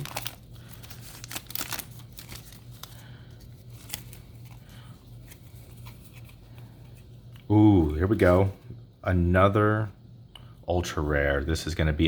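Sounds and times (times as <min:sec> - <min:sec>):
foil wrapper crinkling: 0:00.0 - 0:06.0
trading cards being handled: 0:00.0 - 0:08.3.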